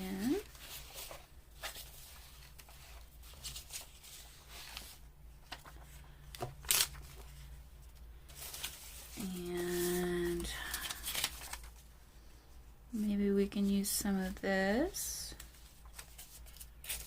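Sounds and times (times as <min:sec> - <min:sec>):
paper rustling and shuffling: 0:00.1 - 0:11.9, 0:15.4 - 0:17.0.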